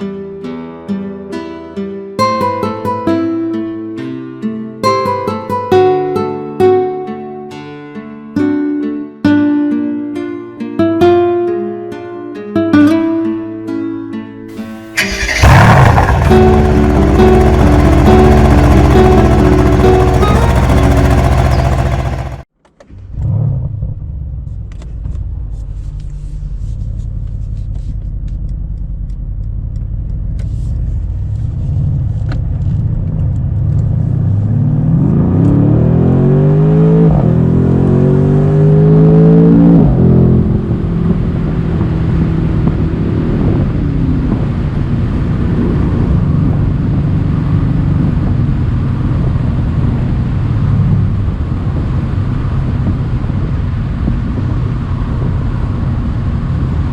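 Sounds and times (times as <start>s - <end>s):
car engine accelerating: 14.6s - 22.4s, 33.4s - 41.4s.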